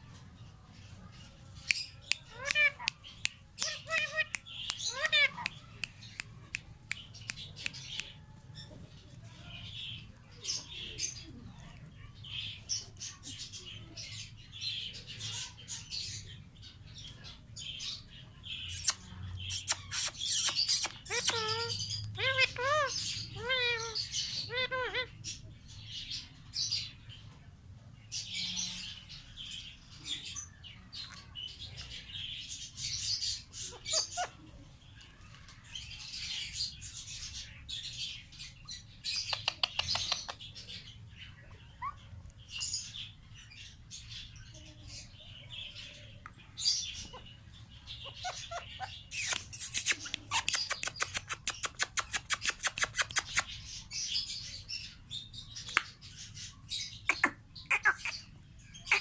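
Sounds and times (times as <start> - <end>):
parrots chirping: 1.7 - 6.3, 18.7 - 25.3, 32.9 - 34.4, 39.1 - 40.5, 41.5 - 42.9, 46.6 - 54.9, 56.8 - 59.0.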